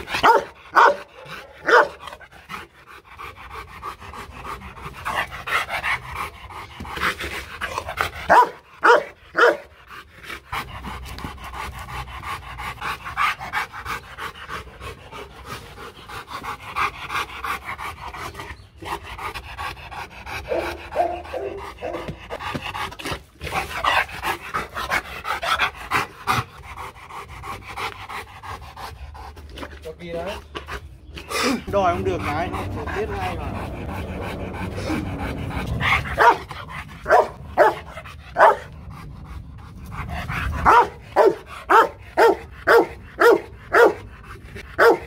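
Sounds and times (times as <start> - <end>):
dog barking loudly: 0.0 - 2.2, 8.2 - 9.7, 20.5 - 22.2, 36.1 - 38.7, 40.6 - 44.1, 44.8 - 45.0
dog panting: 0.0 - 45.0.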